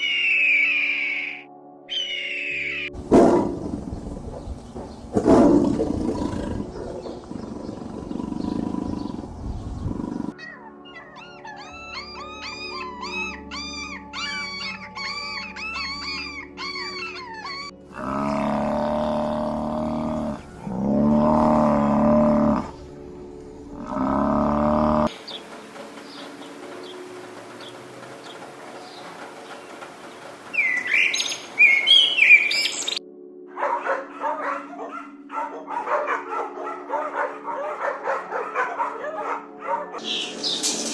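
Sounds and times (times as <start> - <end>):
rough loud animal calls: 17.6 - 23.0, 23.7 - 25.1
long pitched animal calls: 17.9 - 22.9, 23.8 - 25.1.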